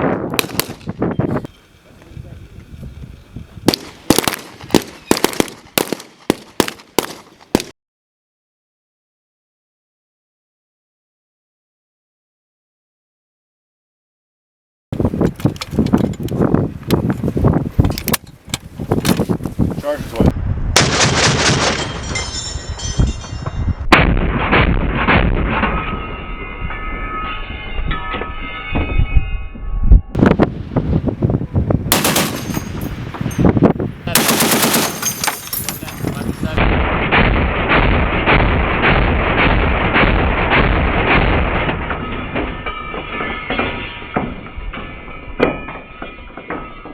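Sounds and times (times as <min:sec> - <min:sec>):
heavy weapons fire: 0:00.4 - 0:00.9, 0:03.7 - 0:07.7, 0:20.7 - 0:22.1, 0:23.9 - 0:25.9, 0:31.9 - 0:33.4, 0:34.1 - 0:35.5, 0:36.3 - 0:42.2
heavy weapon shots with echo: 0:31.9 - 0:32.9, 0:34.1 - 0:35.4.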